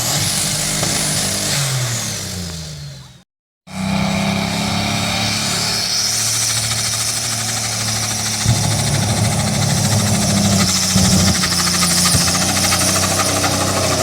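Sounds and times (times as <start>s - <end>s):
tractor engine running hard: 0.0s - 14.0s.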